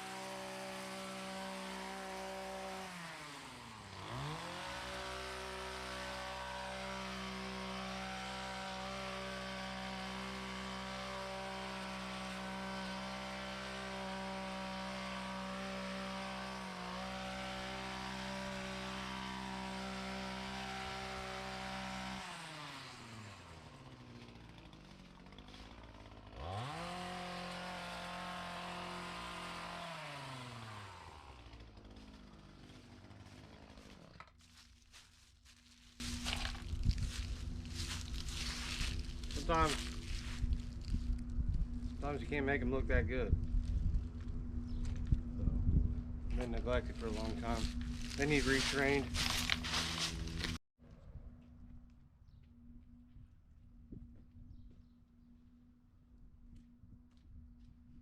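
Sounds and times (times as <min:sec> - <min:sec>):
two-stroke engine revving: 0:00.0 - 0:34.1, 0:36.0 - 0:43.4, 0:46.3 - 0:50.6.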